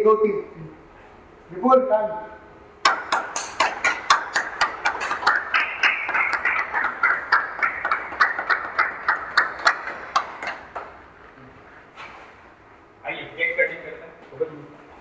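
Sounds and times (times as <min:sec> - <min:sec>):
group clapping in rhythm: 0:02.8 - 0:11.2
people cheering: 0:02.9 - 0:11.0.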